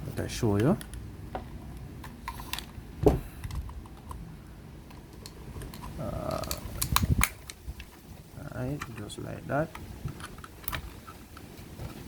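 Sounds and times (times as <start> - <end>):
plastic clicks and snaps: 4.9 - 7.9.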